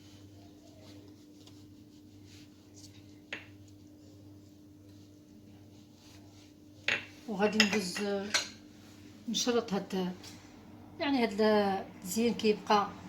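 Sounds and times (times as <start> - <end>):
pastry brush strokes: 0.0 - 10.2.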